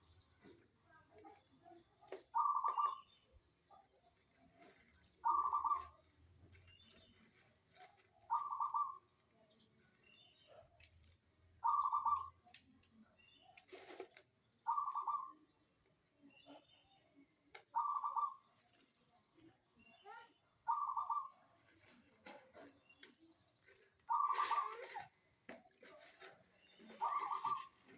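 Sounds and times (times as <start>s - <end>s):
dove cooing trill: 2.0s - 3.1s, 4.6s - 6.0s, 8.2s - 9.1s, 11.6s - 12.4s, 14.7s - 15.4s, 17.8s - 18.4s, 20.7s - 21.4s, 24.1s - 25.1s, 25.8s - 27.9s.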